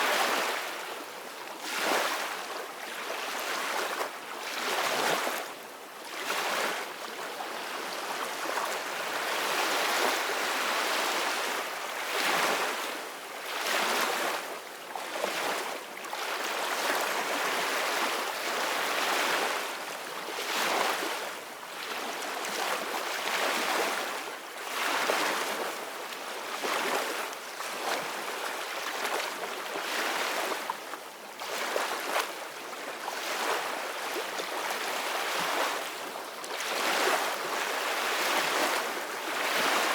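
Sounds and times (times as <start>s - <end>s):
ocean waves breaking on shore: 33.2s - 39.9s.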